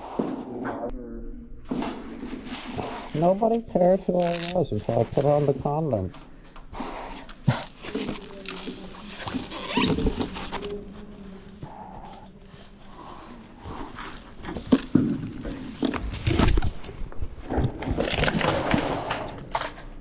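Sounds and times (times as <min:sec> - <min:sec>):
knocks and scrapes of climbing: 0:01.7 - 0:04.2, 0:07.0 - 0:20.0.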